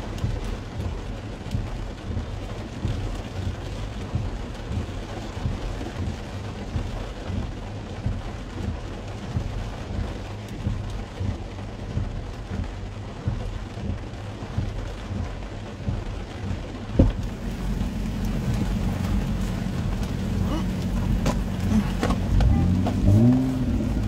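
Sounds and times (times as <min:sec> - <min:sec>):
low steady rumble: 0:00.0 - 0:24.0
rain pattering on car roof: 0:00.0 - 0:24.0.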